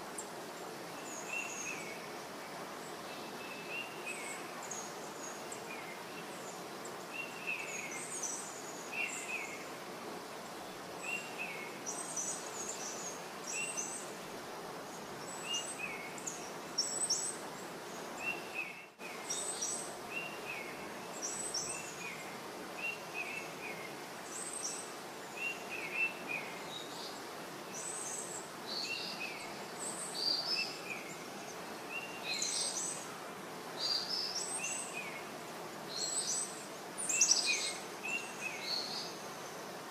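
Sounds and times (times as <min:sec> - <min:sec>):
steady background hiss: 0:00.0 - 0:39.9
small birds chirping: 0:10.4 - 0:14.2, 0:14.8 - 0:39.7.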